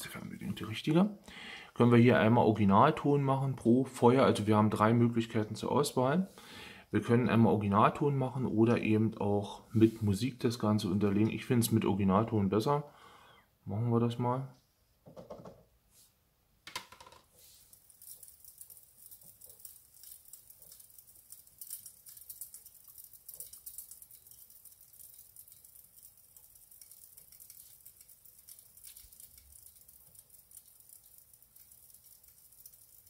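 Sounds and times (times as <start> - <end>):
fire crackling through tv speakers: 17.4 - 33.0.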